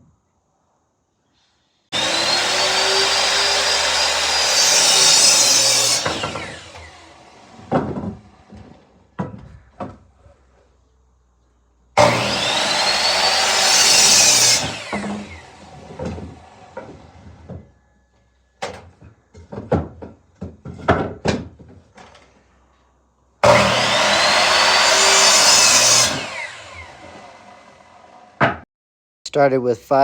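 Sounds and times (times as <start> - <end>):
circular saw cutting wood: 1.9 - 8.8, 12.0 - 17.6, 23.4 - 28.5
saw blade spinning down: 2.0 - 7.7, 12.0 - 16.8, 23.4 - 28.4.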